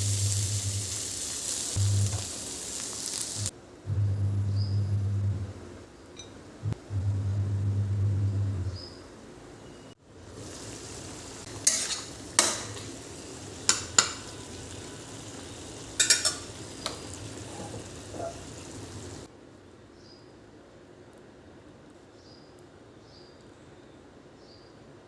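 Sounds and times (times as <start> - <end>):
food sizzling in a pan: 0.0 - 3.5, 10.1 - 19.3
low hum: 1.8 - 2.3, 3.4 - 8.8.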